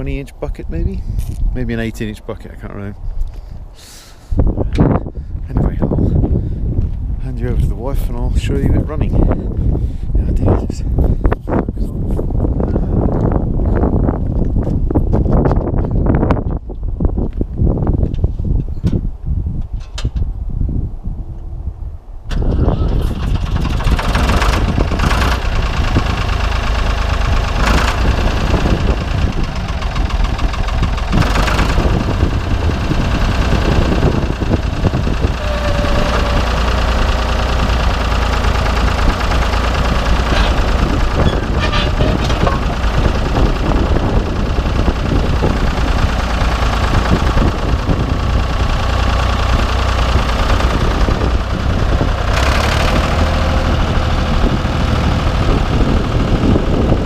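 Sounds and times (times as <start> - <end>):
diesel engine running: 22.3 - 57.0.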